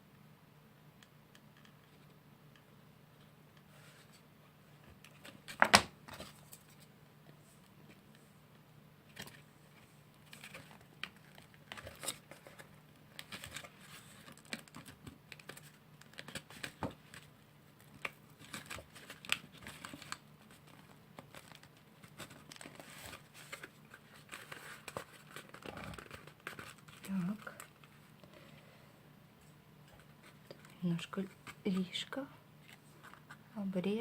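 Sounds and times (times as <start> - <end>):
paper and cardboard crinkling: 4.8 - 6.9, 9.1 - 28.6, 29.8 - 33.5.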